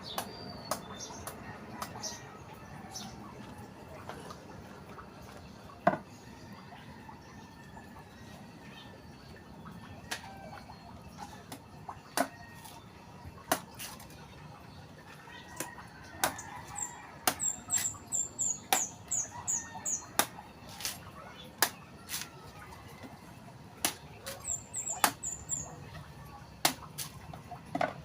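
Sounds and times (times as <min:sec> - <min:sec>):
bird chirping: 0:16.3 - 0:20.1, 0:24.3 - 0:25.8.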